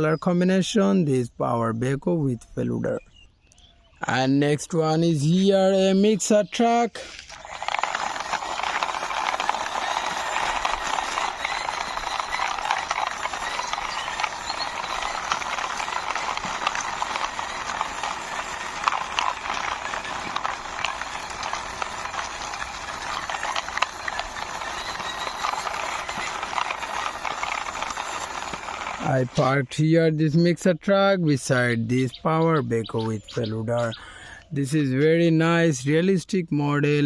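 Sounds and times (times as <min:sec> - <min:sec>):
plastic toy wheels rattling: 0:07.0 - 0:29.8.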